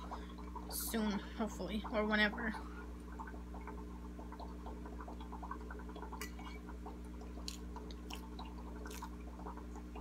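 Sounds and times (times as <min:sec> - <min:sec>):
steady low hum: 0:00.0 - 0:10.0
wet chewing: 0:07.4 - 0:09.2.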